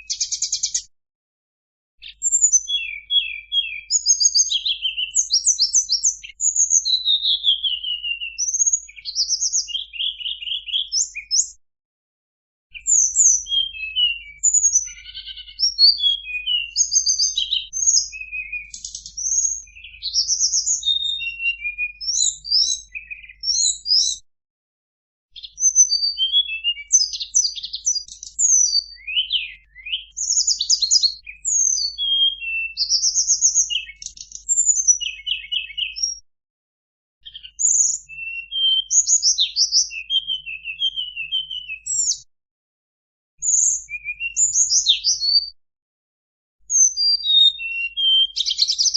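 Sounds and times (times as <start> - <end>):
bird chirping and trilling: 0.0 - 0.9, 2.0 - 11.6, 12.7 - 24.2, 25.4 - 36.2, 37.2 - 42.2, 43.4 - 45.5, 46.7 - 48.9.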